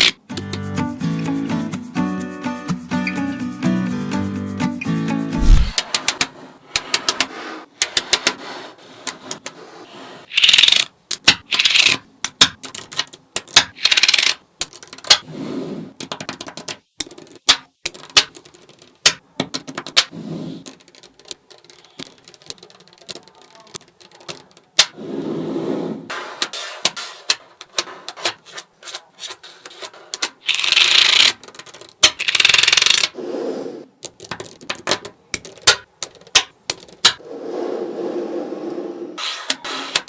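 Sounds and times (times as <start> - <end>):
magnetic balls clicking together: 10.3 - 15.2, 16.0 - 25.0, 30.1 - 33.2, 34.0 - 37.2
balls rattling: 16.0 - 24.9, 30.3 - 33.2, 34.0 - 37.2.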